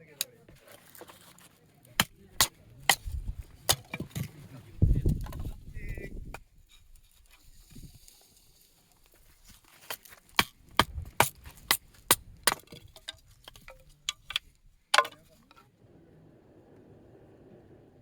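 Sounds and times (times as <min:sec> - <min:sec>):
hard objects knocking and clinking: 0:12.4 - 0:15.5.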